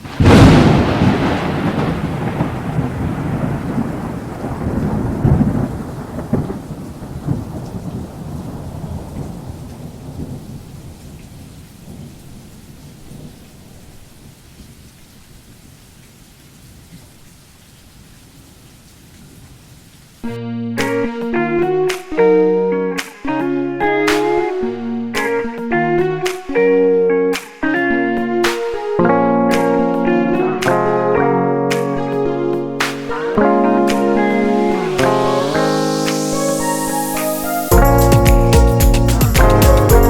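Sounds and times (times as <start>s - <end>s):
thunderclap and rolling rumble: 0.0s - 13.8s
rain hissing: 0.0s - 20.3s, 32.6s - 40.0s.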